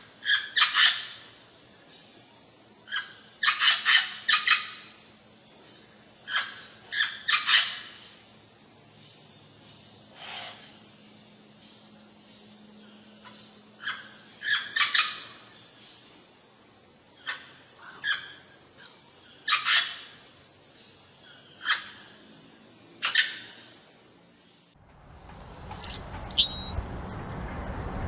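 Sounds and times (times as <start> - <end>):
faint background hiss: 0.0 - 24.8
birds calling sharply: 25.8 - 26.8.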